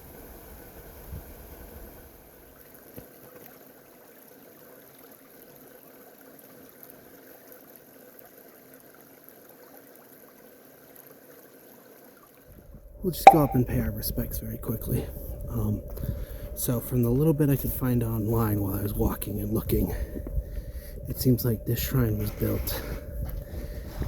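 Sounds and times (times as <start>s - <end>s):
flowing water: 13.3s - 13.6s.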